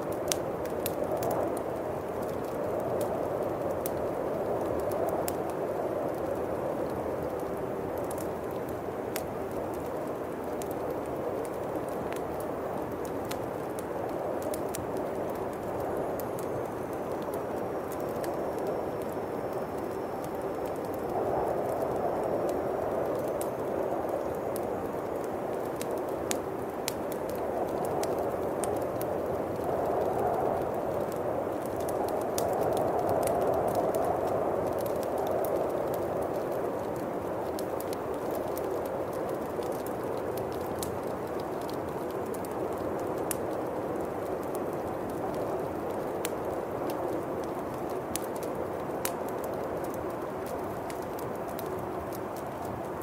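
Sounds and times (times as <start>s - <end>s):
bonfire pops and crackles: 0.0s - 53.0s
howling wind: 0.0s - 53.0s.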